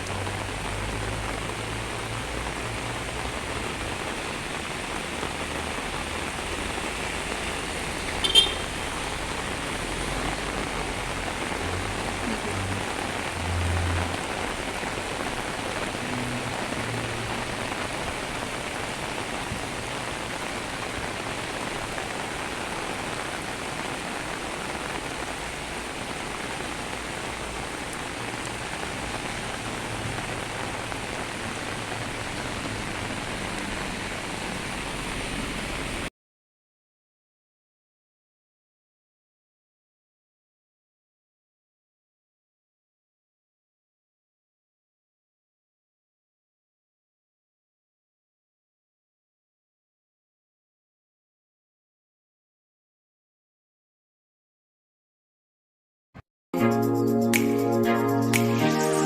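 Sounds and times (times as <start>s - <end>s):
heavy rain pouring: 0.0s - 36.1s.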